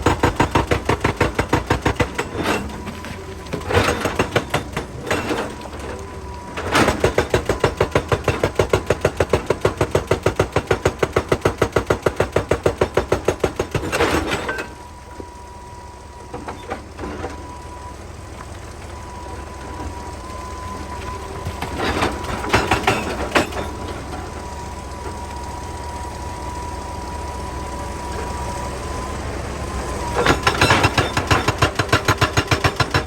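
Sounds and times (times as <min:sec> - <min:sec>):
hydraulic breaker hammering rock: 0:00.0 - 0:05.9, 0:06.6 - 0:14.8, 0:21.4 - 0:24.0, 0:30.1 - 0:33.0
diesel engine whining: 0:00.0 - 0:33.0.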